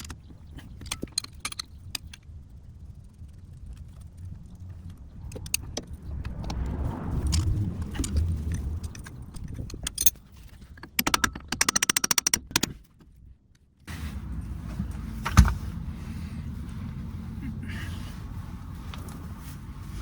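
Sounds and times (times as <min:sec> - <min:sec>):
rapid clicks: 0:00.0 - 0:12.9.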